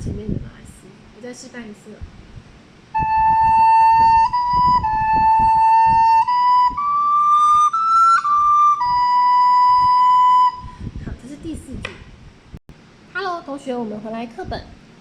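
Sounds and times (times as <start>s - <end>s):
soprano recorder melody: 3.0s - 10.8s.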